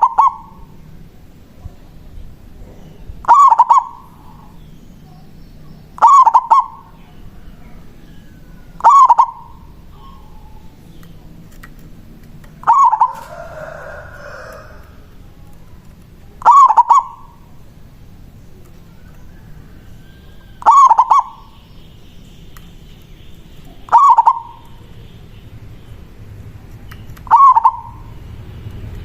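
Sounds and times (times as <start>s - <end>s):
dove cooing: 0.0s - 0.8s, 2.6s - 4.6s, 6.0s - 10.8s, 12.6s - 17.7s, 18.9s - 21.7s, 23.6s - 24.9s, 27.2s - 28.4s.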